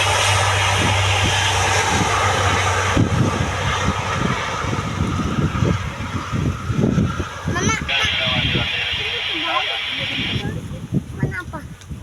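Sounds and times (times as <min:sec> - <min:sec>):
fluttering low rumble: 0:00.0 - 0:10.7
turboprop engines drone: 0:00.0 - 0:11.1
broad rushing sound: 0:07.6 - 0:10.5.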